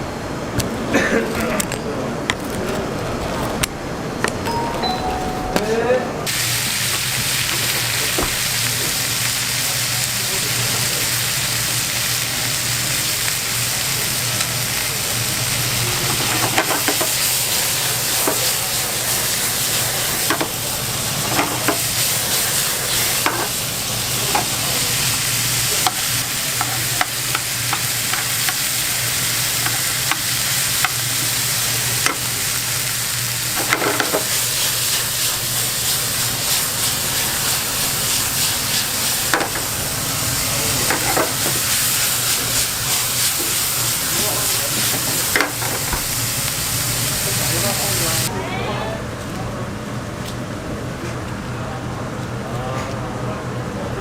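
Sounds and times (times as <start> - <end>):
food sizzling: 6.2 - 48.3.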